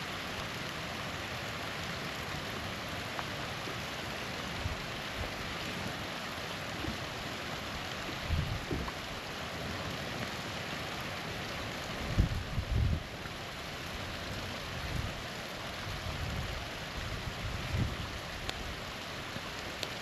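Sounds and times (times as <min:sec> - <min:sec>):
waterfall rushing: 0:00.0 - 0:20.0
faint ticks: 0:19.6 - 0:20.0.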